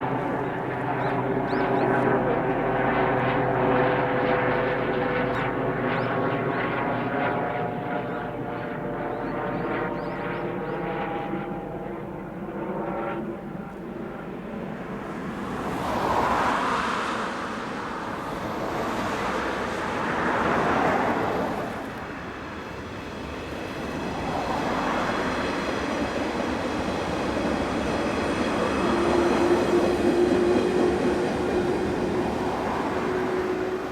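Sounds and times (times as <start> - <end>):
train whine of steady tones: 0.0 - 33.9
train rushing noise: 14.8 - 33.9.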